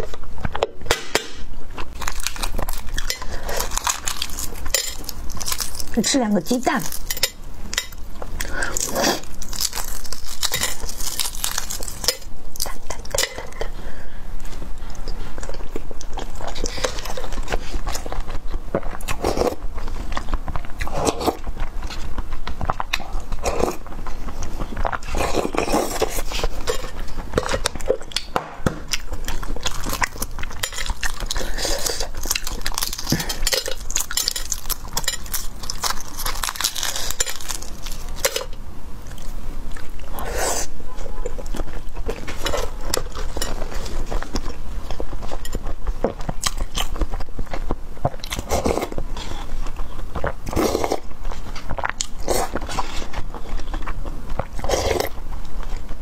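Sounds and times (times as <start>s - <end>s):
person biting and chewing food: 0.0s - 6.0s, 6.8s - 13.8s, 14.5s - 56.0s.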